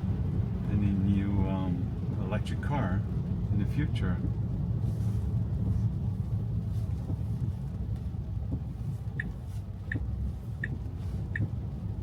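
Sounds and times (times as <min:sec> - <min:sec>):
road and tyre rumble: 0:00.0 - 0:12.0
turn signal ticking: 0:05.4 - 0:12.0.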